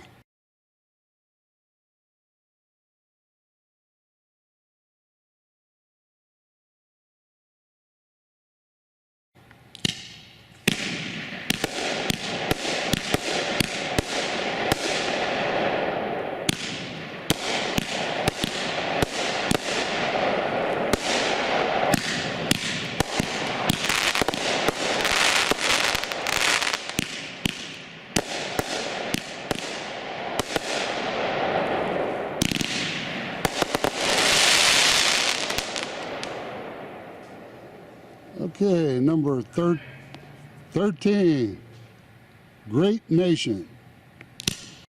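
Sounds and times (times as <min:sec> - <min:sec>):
hiss of bursting fireworks: 0:09.8 - 0:37.9
fireworks sharp reports: 0:09.8 - 0:41.8, 0:42.6 - 0:43.8.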